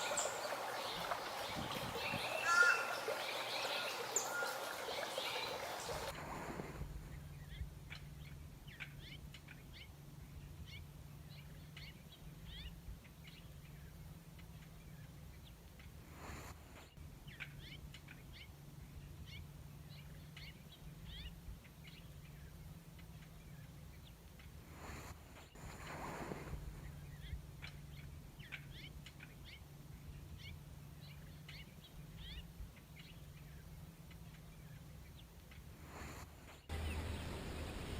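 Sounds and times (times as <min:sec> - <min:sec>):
songbird chirping: 0:00.0 - 0:06.2, 0:36.7 - 0:37.9
faint low hum: 0:25.6 - 0:37.9.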